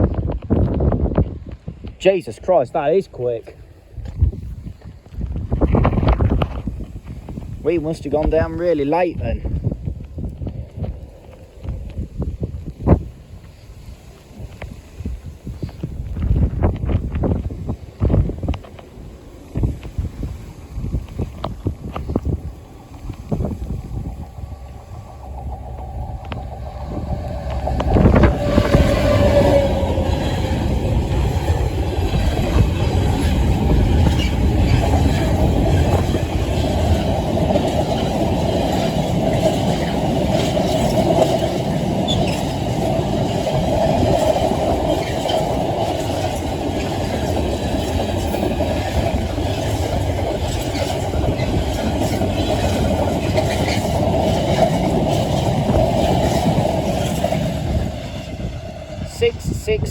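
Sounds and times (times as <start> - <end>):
locomotive rushing past: 0.3 - 59.9
wagons rumbling past: 15.2 - 59.6.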